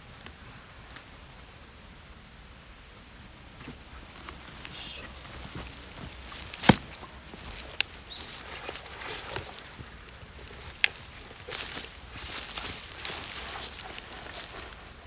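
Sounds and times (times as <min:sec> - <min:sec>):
light rustling: 0:03.6 - 0:15.0.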